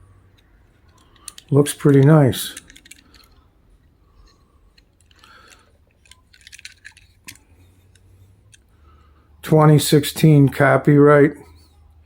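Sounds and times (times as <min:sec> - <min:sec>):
toy car clicking and scraping: 0:00.2 - 0:08.7.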